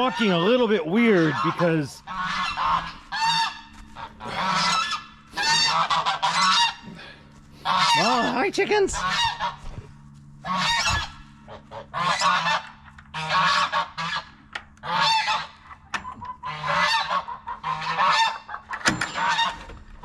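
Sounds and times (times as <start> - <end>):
geese honking: 0.0 - 19.7.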